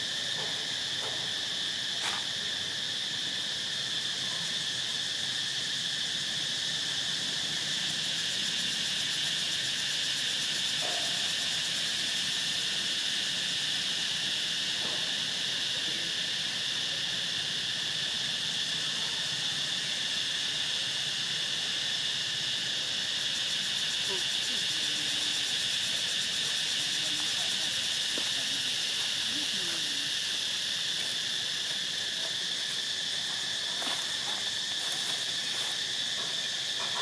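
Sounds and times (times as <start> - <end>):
insects chirring: 0.0 - 37.0.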